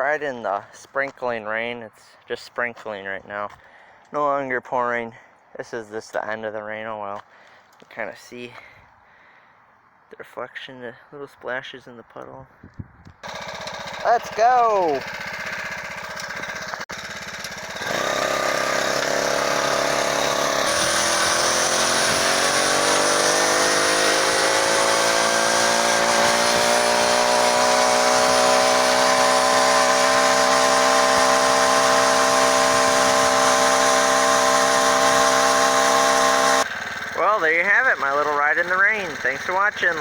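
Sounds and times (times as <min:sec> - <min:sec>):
motorized bicycle engine: 0:13.2 - 0:40.0.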